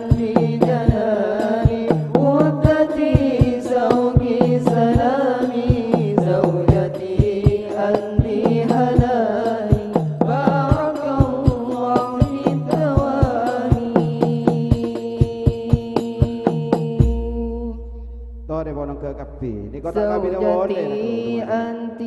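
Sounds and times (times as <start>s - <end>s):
frame drums beating: 0.0s - 17.4s
chant-like singing: 0.0s - 17.9s, 18.6s - 22.0s.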